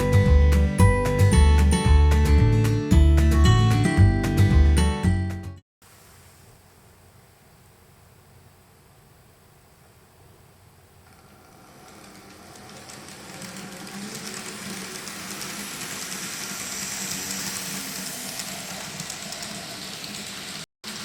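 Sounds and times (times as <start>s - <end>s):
model train running on track: 11.0s - 21.0s.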